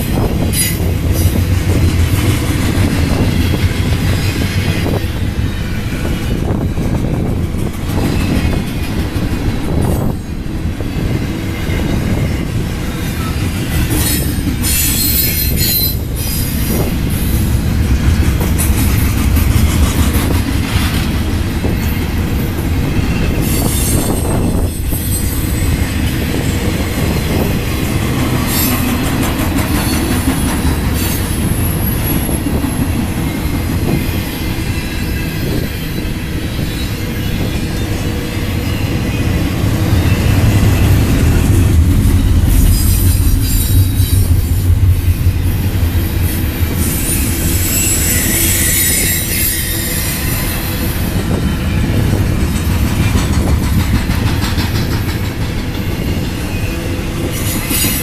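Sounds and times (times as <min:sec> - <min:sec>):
train wheels rumbling on rail: 0:00.0 - 0:58.0
high wheel squeals: 0:09.7 - 0:17.5, 0:21.6 - 0:44.7, 0:46.2 - 0:52.0.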